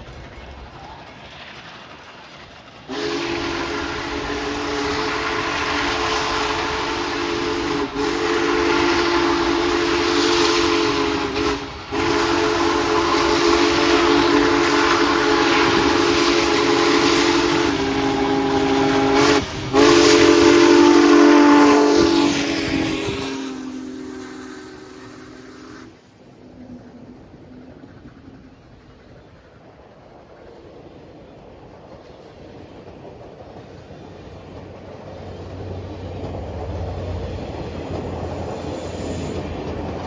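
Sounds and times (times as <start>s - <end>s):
steady steam hiss: 0.0s - 40.0s
steam locomotive whistle blasts: 2.9s - 26.0s, 36.6s - 40.0s.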